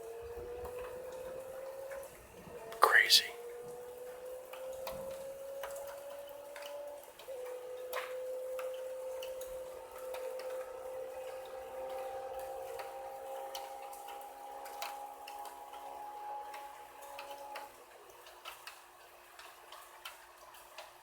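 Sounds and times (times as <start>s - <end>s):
raindrops ticking on hard surfaces: 16.5s - 21.0s.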